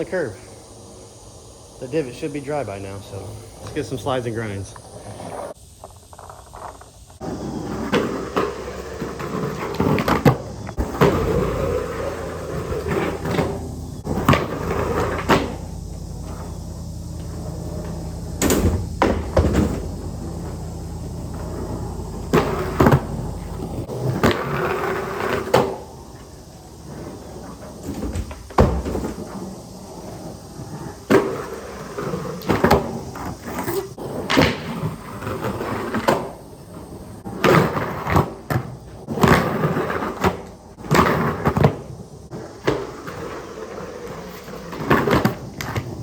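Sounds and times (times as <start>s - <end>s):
skateboard rolling on concrete: 0.0s - 46.0s
skateboard trucks grinding on curb: 0.0s - 46.0s
skateboard clacks and knocks: 7.2s - 16.5s.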